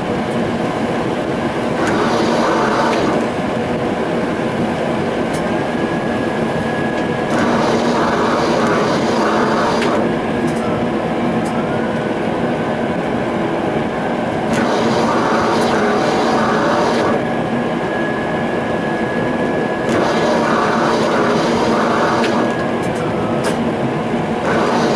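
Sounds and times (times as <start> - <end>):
tram rolling rumble: 0.0 - 24.9
sharp clicks of tram: 6.9 - 10.8, 19.8 - 23.7.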